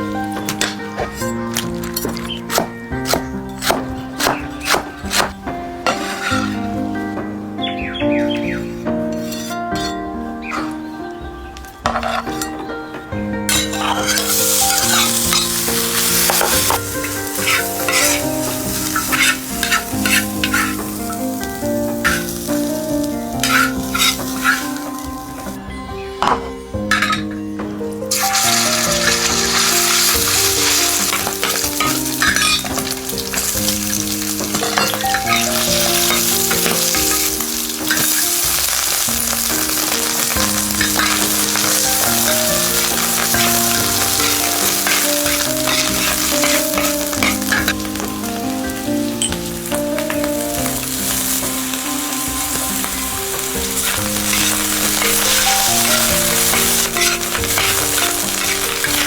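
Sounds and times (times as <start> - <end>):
food sizzling in a pan: 0.0 - 12.6, 13.5 - 25.6, 26.2 - 59.0
light background music: 0.0 - 59.0
scraping in a pan: 3.1 - 6.8, 9.2 - 10.9, 13.5 - 22.8, 23.4 - 24.9, 28.1 - 59.0.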